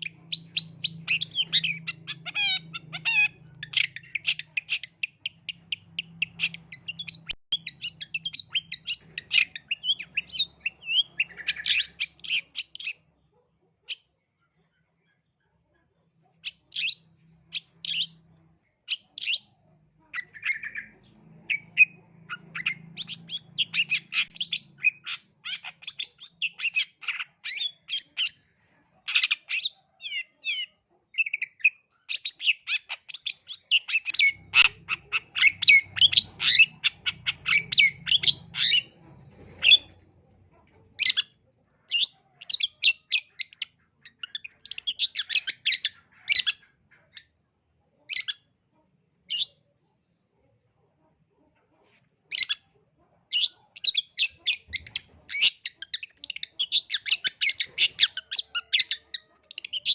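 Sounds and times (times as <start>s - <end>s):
bird singing high chirps: 0.0s - 13.1s, 16.4s - 40.0s, 41.0s - 47.3s, 53.3s - 59.9s.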